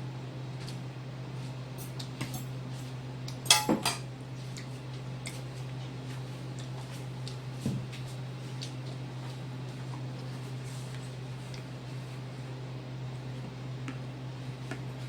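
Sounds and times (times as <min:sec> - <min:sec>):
utensils clinking against bowl: 0:03.4 - 0:04.1.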